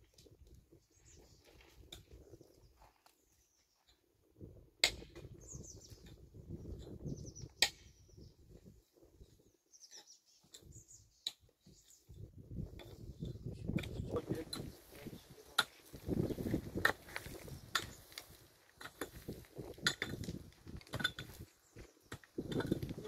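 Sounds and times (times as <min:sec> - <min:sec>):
small birds chirping: 0:00.7 - 0:04.0, 0:05.1 - 0:23.0
low rustling and rumbling: 0:12.6 - 0:23.0.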